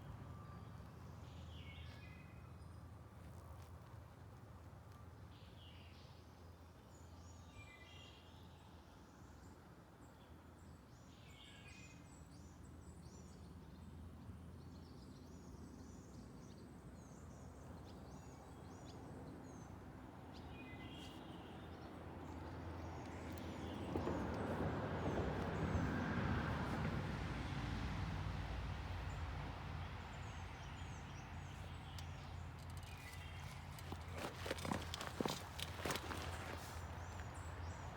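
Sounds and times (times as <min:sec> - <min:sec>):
small birds chirping: 0:29.8 - 0:37.9.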